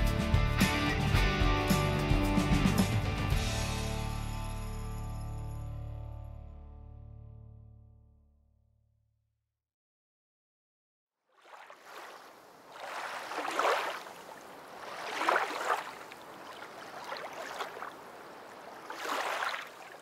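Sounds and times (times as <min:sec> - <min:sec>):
water rushing and splashing: 0:11.3 - 0:20.0.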